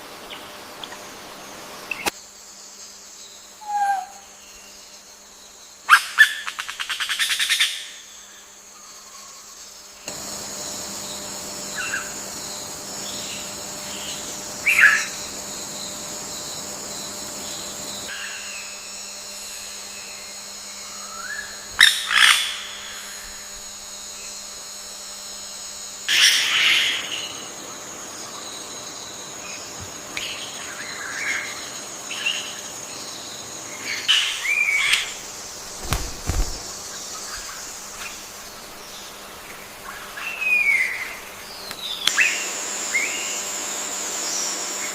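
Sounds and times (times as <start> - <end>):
high insect drone: 0.0 - 44.9
bird calls: 3.6 - 4.8, 33.8 - 43.3.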